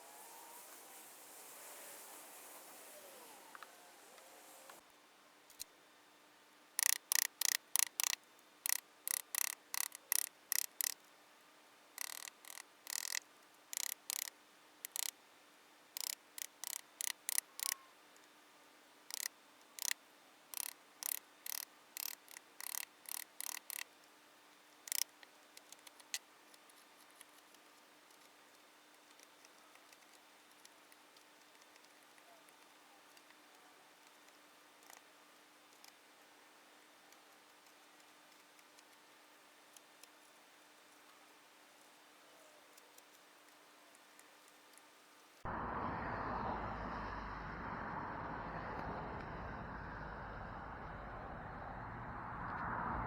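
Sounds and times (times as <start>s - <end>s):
short scraping strokes: 0.0s - 4.8s
faint steady hum: 0.0s - 53.0s.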